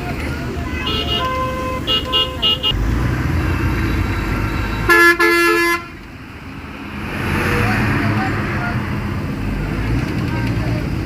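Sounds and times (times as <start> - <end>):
engine rumble: 0.0 - 11.0
passing traffic: 0.0 - 11.0
vehicle horn honking: 0.8 - 2.8, 4.4 - 6.0.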